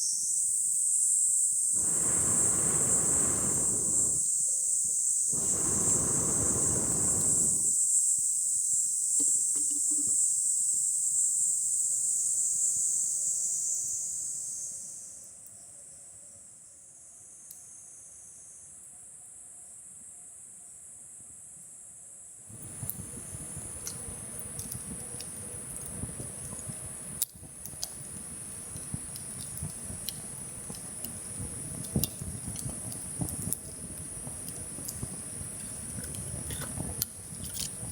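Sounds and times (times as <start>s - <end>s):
high-pitched insect chorus: 0.0s - 8.4s
faint clicks: 5.4s - 7.7s
small clicks and knocks: 34.4s - 37.9s.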